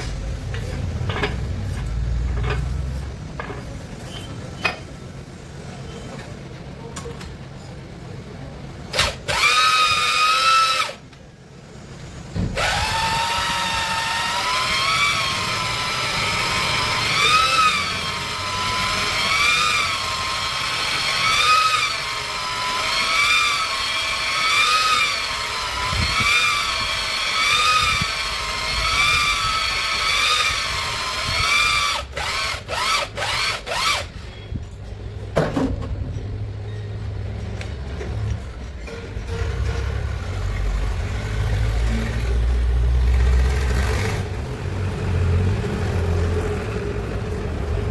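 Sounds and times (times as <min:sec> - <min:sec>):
electric drill whining: 0:08.9 - 0:11.0, 0:12.6 - 0:34.1.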